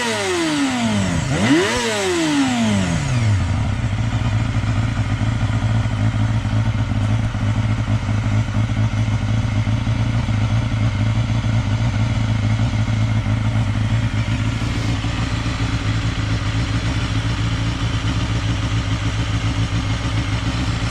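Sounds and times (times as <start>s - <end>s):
motorcycle engine running steadily: 0.0s - 20.9s.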